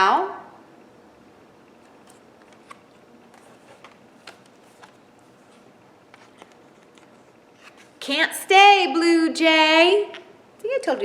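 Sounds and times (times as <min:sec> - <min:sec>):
picture book pages clicking: 0:01.8 - 0:07.9.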